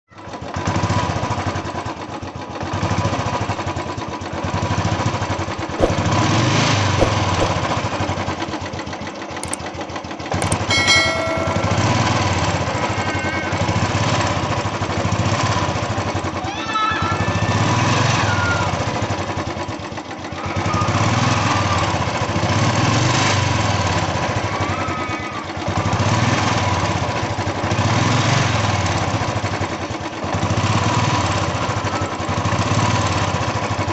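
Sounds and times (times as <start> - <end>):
motorcycle engine running: 5.8 - 6.4, 7.0 - 9.6.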